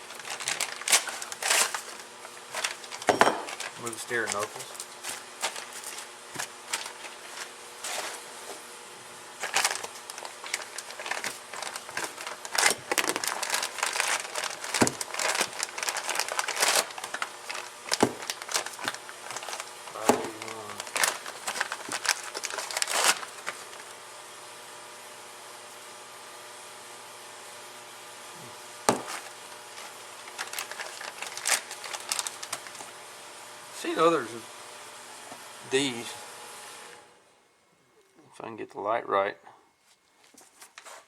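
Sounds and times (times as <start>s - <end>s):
packaging crinkling and rustling: 0.0s - 8.7s, 9.4s - 23.9s, 28.9s - 33.0s.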